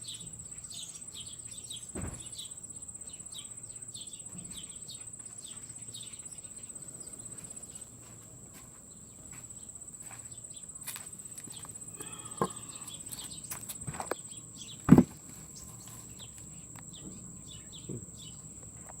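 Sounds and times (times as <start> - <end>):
high-pitched insect trill: 0.0 - 19.0
dull thump: 1.9 - 2.4, 14.9 - 15.3
bird chirps: 11.5 - 18.6.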